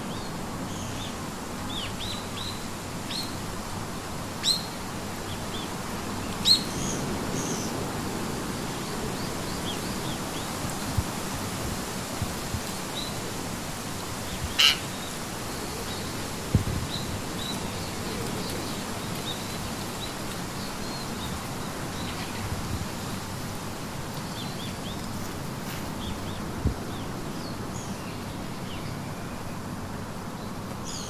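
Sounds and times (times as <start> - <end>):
loud squawk: 14.6 - 14.9.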